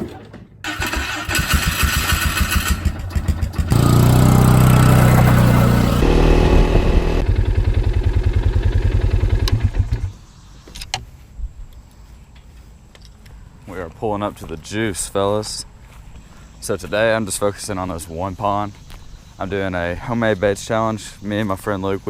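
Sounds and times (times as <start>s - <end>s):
motorcycle engine running and revving: 1.5s - 10.1s.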